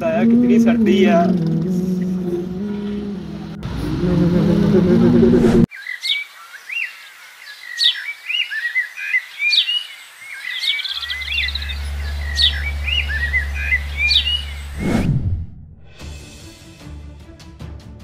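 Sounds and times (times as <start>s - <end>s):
steady low hum: 0.0s - 5.7s, 11.0s - 15.8s
small birds chirping: 5.7s - 14.8s
whistled bird notes: 7.7s - 14.8s.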